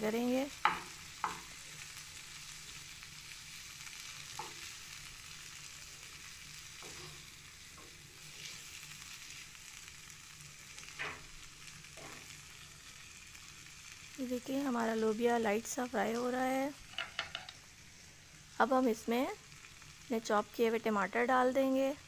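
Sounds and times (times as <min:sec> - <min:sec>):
food sizzling in a frying pan: 0:00.0 - 0:22.0
wooden spoon scraping a pan: 0:06.7 - 0:08.7.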